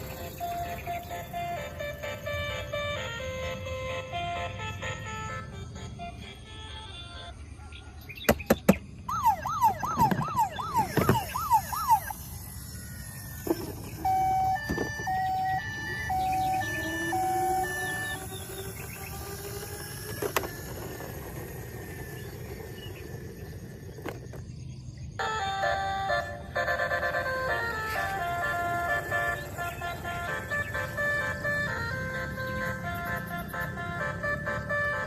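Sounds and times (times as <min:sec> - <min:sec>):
toy siren wailing: 0:00.0 - 0:08.1, 0:09.0 - 0:24.5, 0:25.2 - 0:35.0
electronic beeps: 0:09.1 - 0:21.2.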